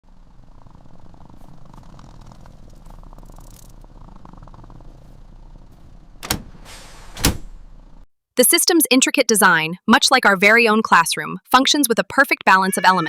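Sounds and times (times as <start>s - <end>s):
cat purring: 0.0s - 6.2s.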